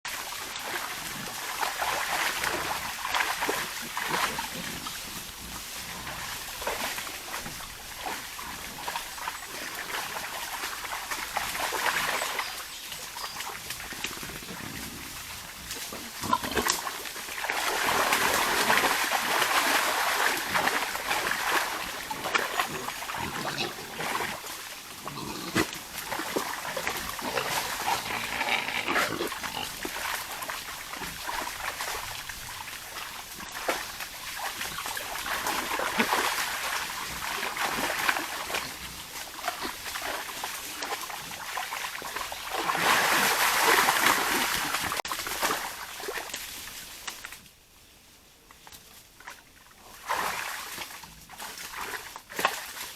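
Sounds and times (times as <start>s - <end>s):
rustling while foraging: 0.3s - 52.9s
wild boars grunting and snuffling: 0.4s - 46.3s.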